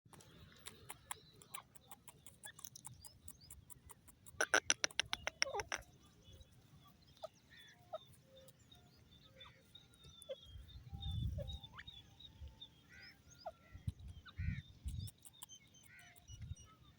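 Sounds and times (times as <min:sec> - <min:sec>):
faint bird chirps: 0:00.1 - 0:16.9
bird calling sharp notes: 0:04.3 - 0:05.8.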